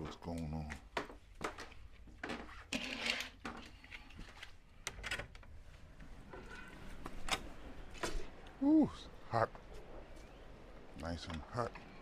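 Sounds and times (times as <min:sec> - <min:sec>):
door opening: 0:06.1 - 0:08.4.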